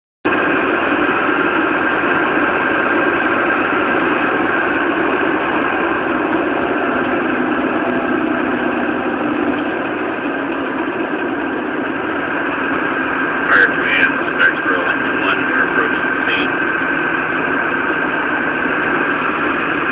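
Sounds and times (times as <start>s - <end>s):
fire engine motor droning: 0.3s - 19.9s.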